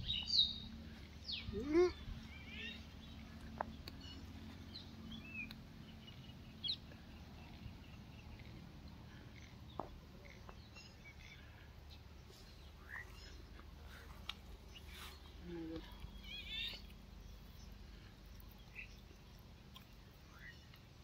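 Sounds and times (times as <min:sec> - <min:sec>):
faint bird chirps: 0:00.0 - 0:20.9
low outdoor background hum: 0:00.0 - 0:21.0.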